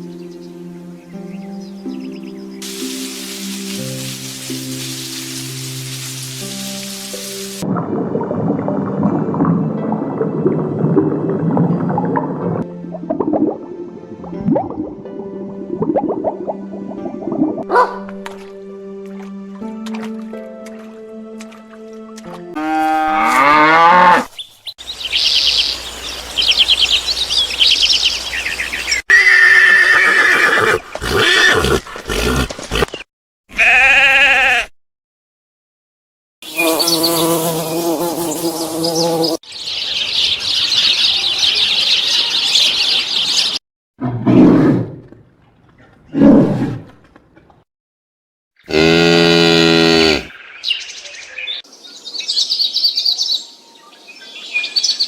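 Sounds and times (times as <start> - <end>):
cattle lowing: 30.9 - 33.0
sheep bleating: 33.5 - 34.7.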